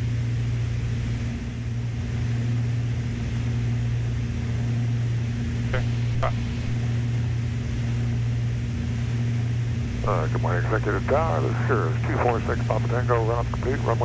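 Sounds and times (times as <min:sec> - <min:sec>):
aircraft engines droning in cockpit: 0:00.0 - 0:14.0.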